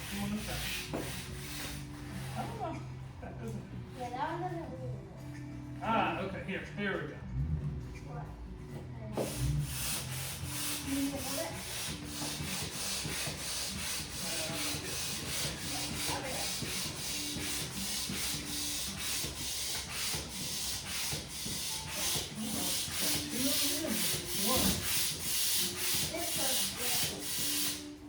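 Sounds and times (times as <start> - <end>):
hand air pump hissing: 0.0 - 2.7, 9.2 - 28.0.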